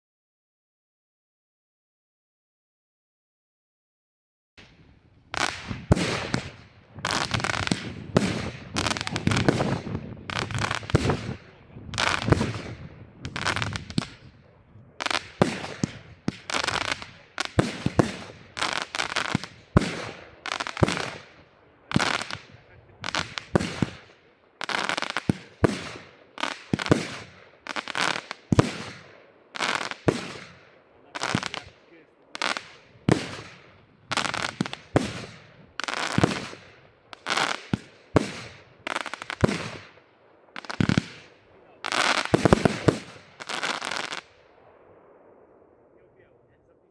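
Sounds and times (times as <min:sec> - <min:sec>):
fireworks battery firing shots: 0:04.6 - 0:14.4, 0:15.0 - 0:40.0, 0:40.6 - 0:44.4.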